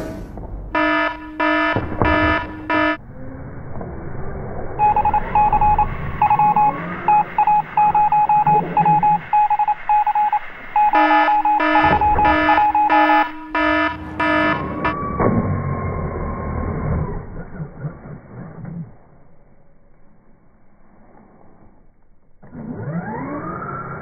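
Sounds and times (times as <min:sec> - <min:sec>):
high electronic beeps: 0:00.8 - 0:03.0, 0:04.8 - 0:15.0
low buzzy beeps: 0:00.8 - 0:03.0, 0:04.8 - 0:15.4.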